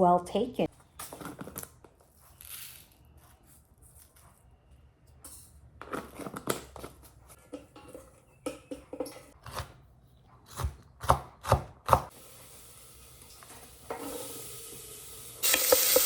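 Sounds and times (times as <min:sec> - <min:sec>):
knife chopping on cutting board: 0:10.5 - 0:12.1.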